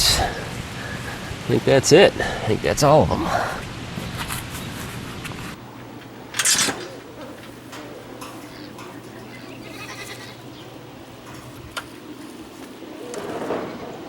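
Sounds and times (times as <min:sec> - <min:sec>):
steady low hum: 0:00.0 - 0:14.0
animal call: 0:06.2 - 0:14.0.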